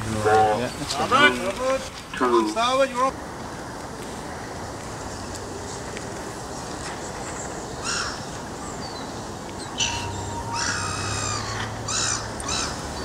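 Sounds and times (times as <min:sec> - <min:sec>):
steady background hiss: 0:00.0 - 0:13.0
birds giving harsh calls: 0:07.8 - 0:13.0.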